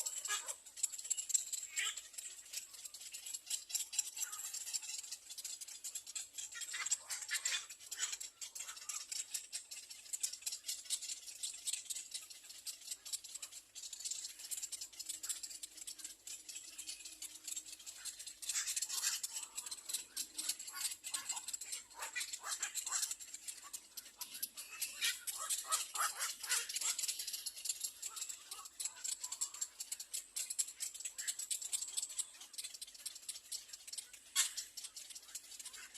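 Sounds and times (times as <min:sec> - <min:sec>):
chicks clicking chatter: 0:00.0 - 0:35.9.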